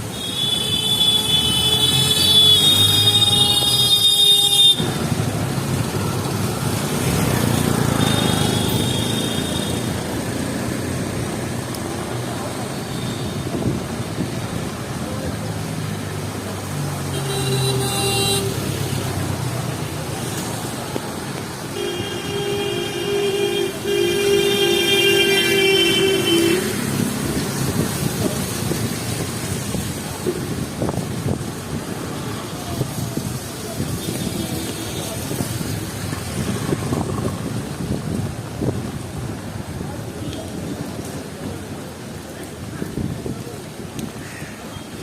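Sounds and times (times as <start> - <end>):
vehicle horns: 0.0 - 5.1, 7.8 - 10.0, 17.1 - 19.0, 21.7 - 27.0
steady traffic noise: 0.0 - 45.0.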